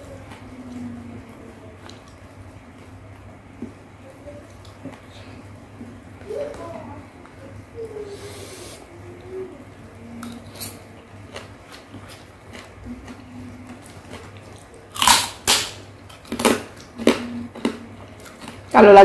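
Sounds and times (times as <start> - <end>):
wet chewing: 10.2 - 18.7.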